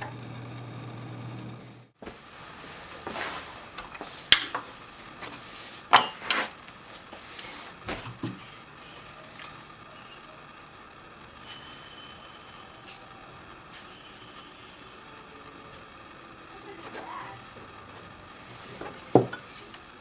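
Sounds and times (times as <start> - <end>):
hard objects knocking and clinking: 19.1 - 19.5.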